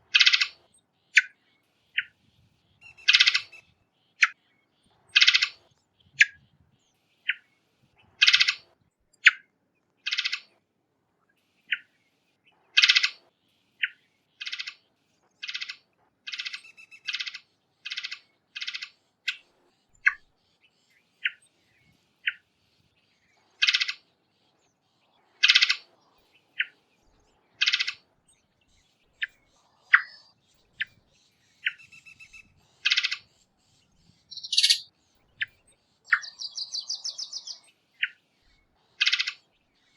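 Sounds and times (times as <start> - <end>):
thrush calling: 34.3 - 34.9.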